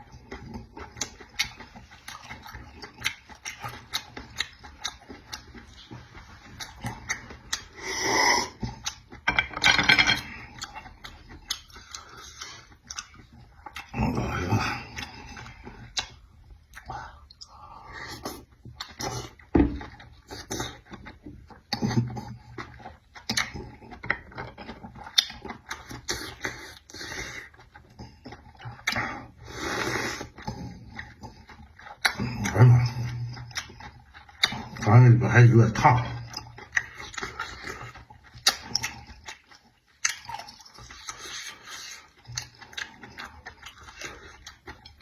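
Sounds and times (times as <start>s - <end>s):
person chewing food: 0.0s - 34.9s, 35.7s - 45.0s
mouth clicks and smacks: 14.8s - 17.6s, 20.2s - 26.5s, 33.3s - 34.8s, 38.3s - 45.0s.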